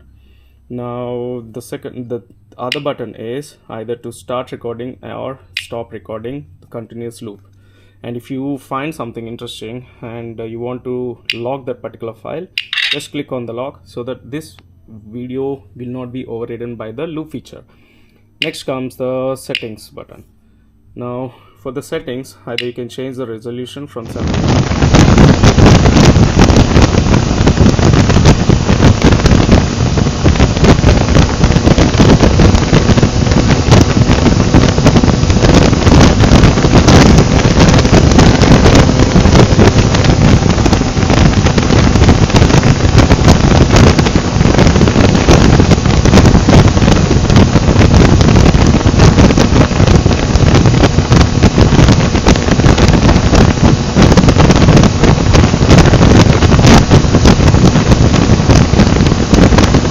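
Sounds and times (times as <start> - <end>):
wind buffeting microphone: 24.2 - 59.9
motorcycle engine: 24.7 - 54.2.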